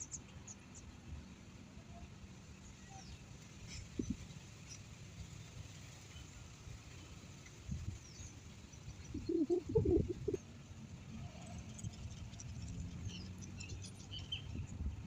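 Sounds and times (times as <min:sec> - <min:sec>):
outdoor background noise: 0:00.0 - 0:15.0
low-pitched animal calls: 0:09.2 - 0:10.4.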